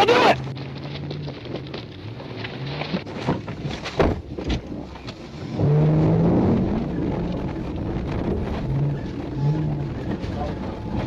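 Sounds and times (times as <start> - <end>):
truck engine revving: 5.4 - 11.0.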